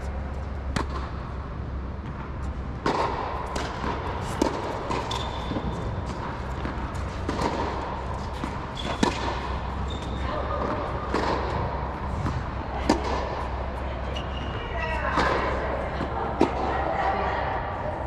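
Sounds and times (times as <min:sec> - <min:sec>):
rackets striking tennis balls: 0:00.0 - 0:14.3
tennis balls bouncing on court: 0:00.0 - 0:16.8
steady low hum: 0:00.0 - 0:18.0.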